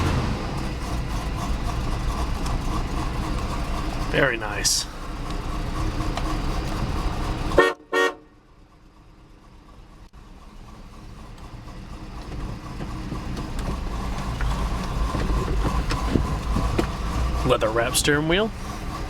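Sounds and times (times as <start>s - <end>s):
car engine idling: 0.0s - 19.0s
car horn toots: 7.5s - 8.4s.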